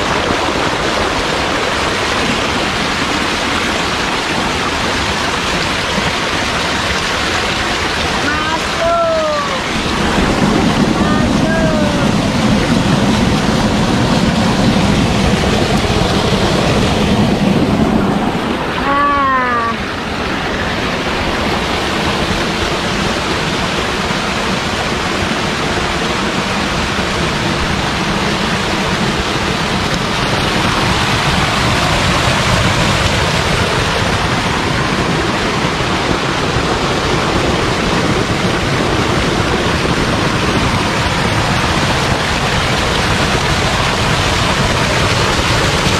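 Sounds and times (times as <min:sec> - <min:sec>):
waterfall rushing: 0:00.0 - 0:45.9
short pitched voice-like sound: 0:18.8 - 0:19.9.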